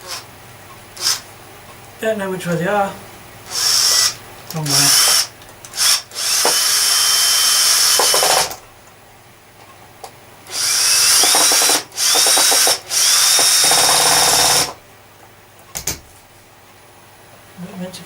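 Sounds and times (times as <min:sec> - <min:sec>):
electric drill whining: 0:00.0 - 0:00.2, 0:01.0 - 0:01.2, 0:03.5 - 0:08.6, 0:10.5 - 0:14.8.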